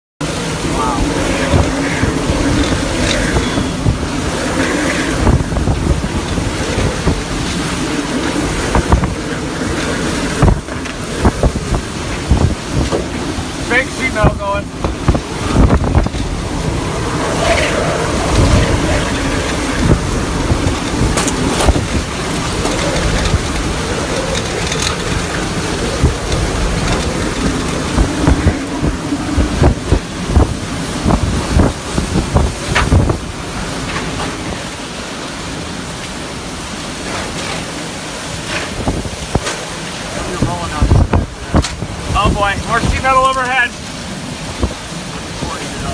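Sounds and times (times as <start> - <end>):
driving rain: 0.2 - 45.9
strong wind gusts: 0.2 - 45.9
wavering wind whistle: 0.3 - 10.6.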